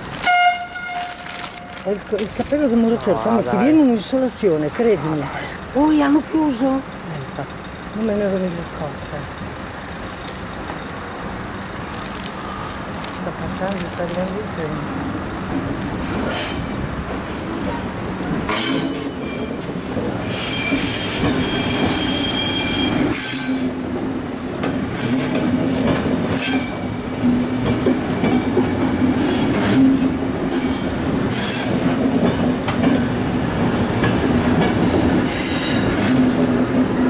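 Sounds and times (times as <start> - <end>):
low train hum: 0.0 - 37.0
wheels clacking over rail joints: 5.8 - 37.0
train wheels squealing: 18.5 - 23.8.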